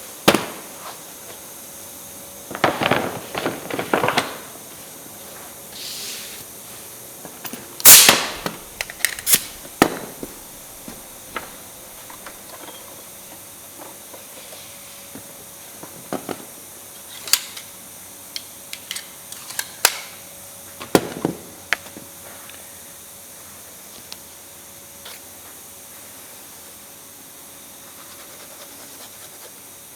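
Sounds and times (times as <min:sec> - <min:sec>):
loud sharp crack: 0:07.8 - 0:10.4.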